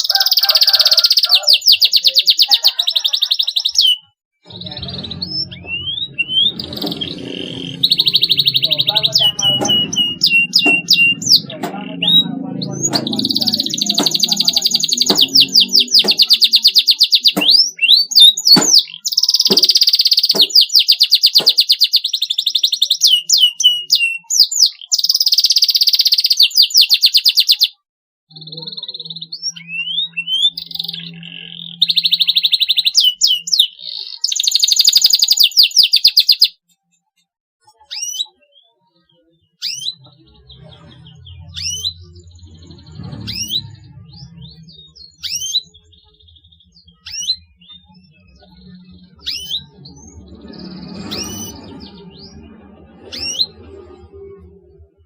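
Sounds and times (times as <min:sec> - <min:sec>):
canary trilling: 0:00.0 - 0:36.6, 0:37.7 - 0:53.8
rising bird chirps: 0:03.6 - 0:24.5.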